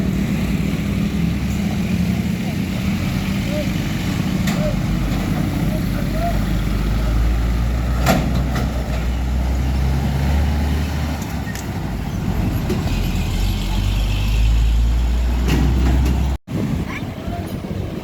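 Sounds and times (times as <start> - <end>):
diesel truck engine rumble: 0.0 - 18.0.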